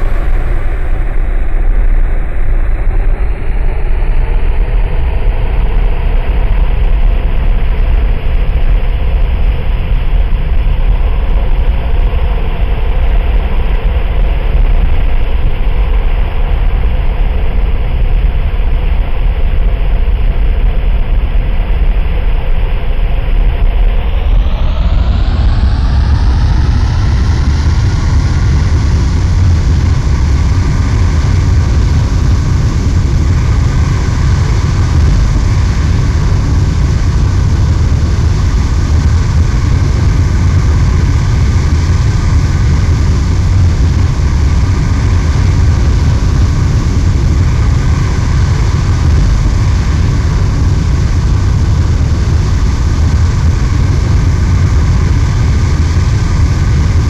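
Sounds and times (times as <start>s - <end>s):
jet engine high whine: 0.0s - 57.0s
jet engine low rumble: 0.0s - 57.0s.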